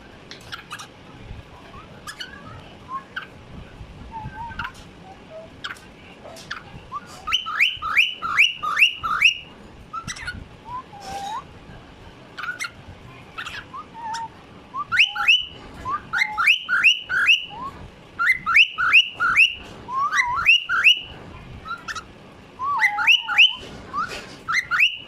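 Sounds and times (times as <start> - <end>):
cockatiel whistling: 4.1 - 5.8, 6.5 - 11.4, 13.4 - 25.0.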